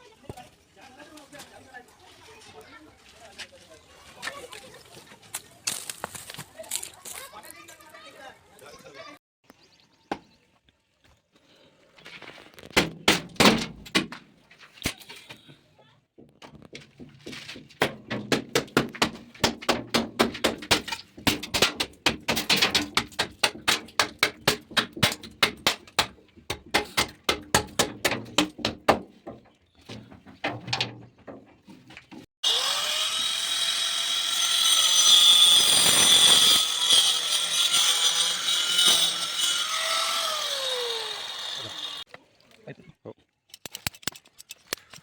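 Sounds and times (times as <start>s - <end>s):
electric power tool running: 32.4s - 42.0s.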